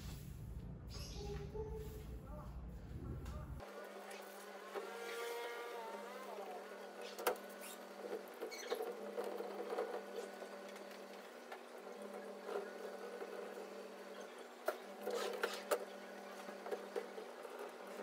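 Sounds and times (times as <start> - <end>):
low steady hum: 0.0 - 3.9
cloth squeaking on window glass: 7.0 - 9.4, 15.0 - 15.8.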